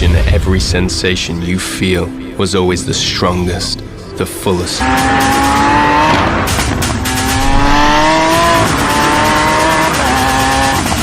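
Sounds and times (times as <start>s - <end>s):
music: 0.0s - 11.0s
car engine accelerating hard: 4.8s - 11.0s.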